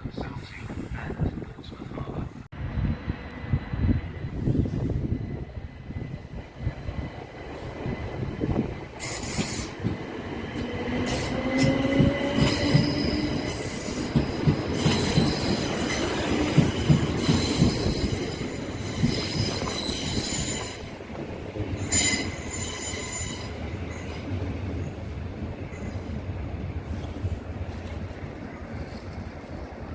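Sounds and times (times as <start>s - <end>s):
train wheels squealing: 9.0s - 9.9s, 10.9s - 21.0s, 21.8s - 24.2s.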